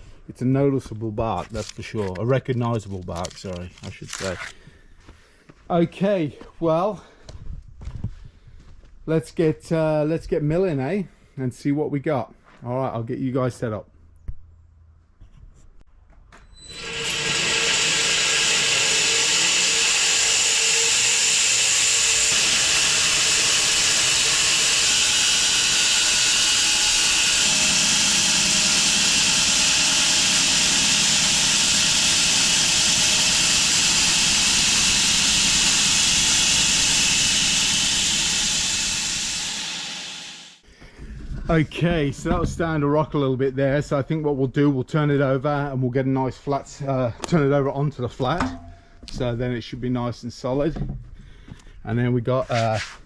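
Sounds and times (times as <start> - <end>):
sawmill blade cutting log: 16.6 - 40.6.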